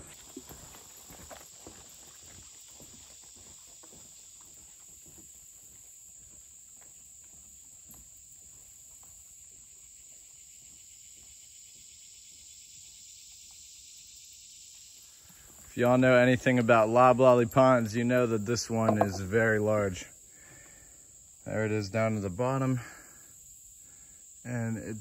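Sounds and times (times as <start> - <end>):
footsteps on wooden boardwalk: 0.0 - 11.3, 18.8 - 19.3
high-pitched insect chorus: 0.0 - 25.0.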